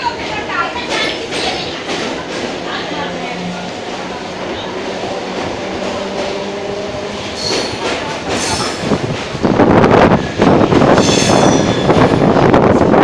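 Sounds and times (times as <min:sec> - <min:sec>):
train rushing noise: 0:00.0 - 0:13.0
train wheels squealing: 0:07.4 - 0:07.8, 0:10.9 - 0:12.1.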